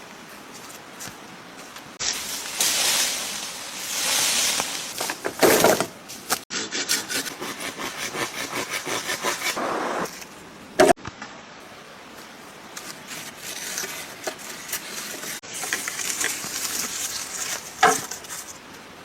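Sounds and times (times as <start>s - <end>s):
hand saw rasping through wood: 6.5s - 10.0s.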